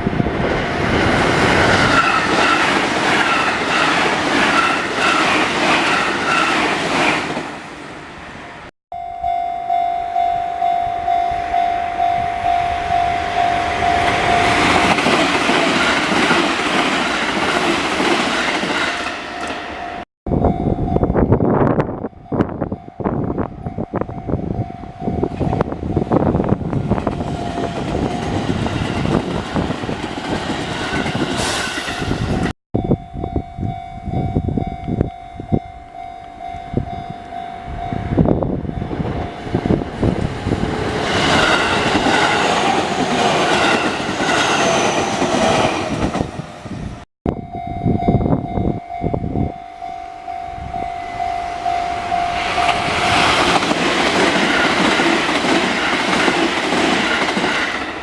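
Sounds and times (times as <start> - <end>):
crossing warning bell ringing: 8.9 - 30.0, 32.8 - 46.2, 47.3 - 58.0.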